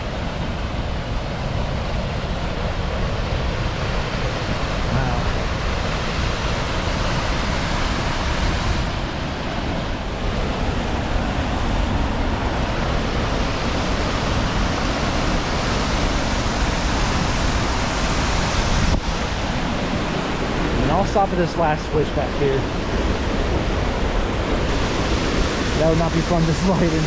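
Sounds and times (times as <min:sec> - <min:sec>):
waterfall rushing: 0:10.1 - 0:27.0.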